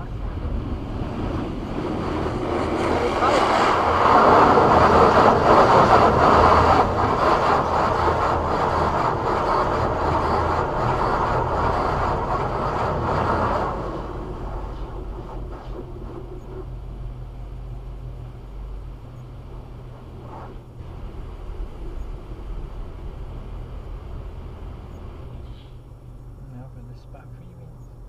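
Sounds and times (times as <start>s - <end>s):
low idle hum: 6.9s - 28.0s.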